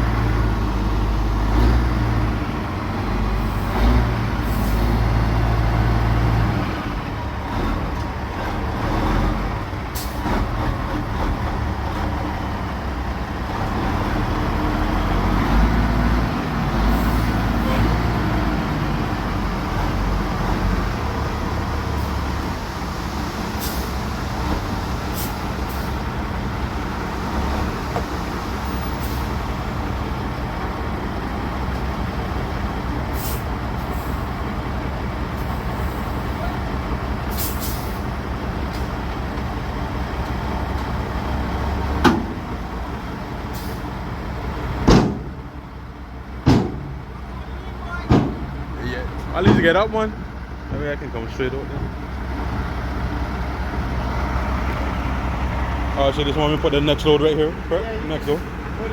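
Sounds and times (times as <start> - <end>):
diesel truck engine running: 0.0 - 58.9
loud sharp bangs: 44.8 - 45.4, 46.4 - 47.0.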